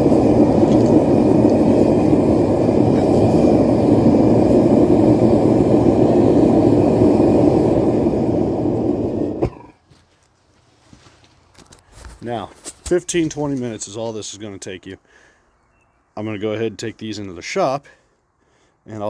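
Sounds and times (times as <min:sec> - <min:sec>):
forge burner roaring: 0:00.0 - 0:09.8.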